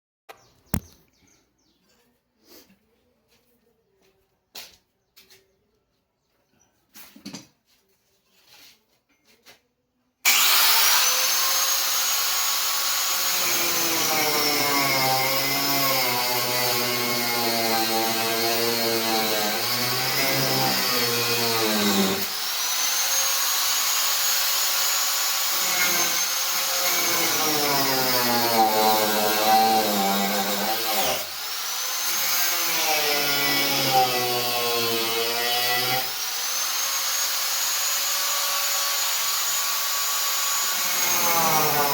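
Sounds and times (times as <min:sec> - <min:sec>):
power tool cutting wood: 0:10.2 - 0:41.9.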